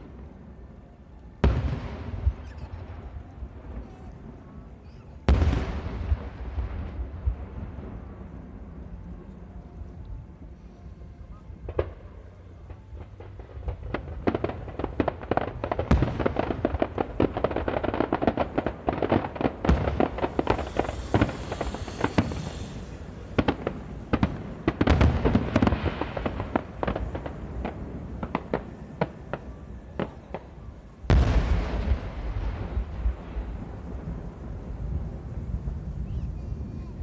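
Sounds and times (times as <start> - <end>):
firework bangs and crackling: 1.4 - 9.7, 11.6 - 37.0
deep firework boom: 5.3 - 8.2, 13.2 - 29.2, 31.1 - 36.7.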